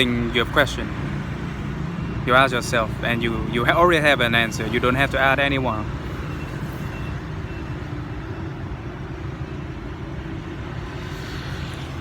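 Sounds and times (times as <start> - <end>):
low rumble of vehicles: 0.0 - 12.0.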